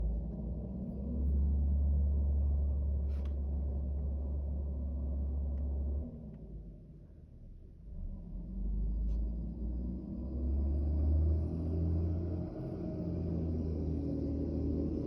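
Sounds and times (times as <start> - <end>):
diesel engine revving: 8.1 - 15.0.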